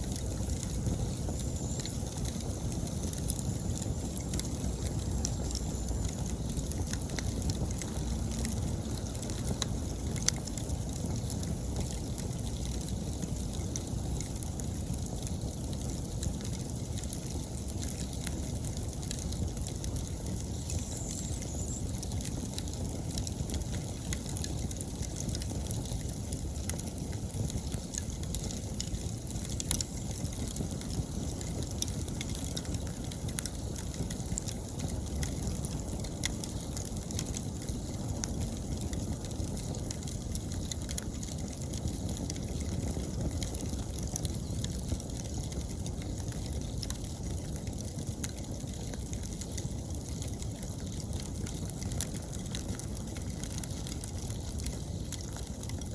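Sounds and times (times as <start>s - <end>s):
bonfire flame rumble: 0.0s - 55.9s
fire crackles and pops: 0.0s - 55.9s
insects chirring: 20.5s - 22.0s.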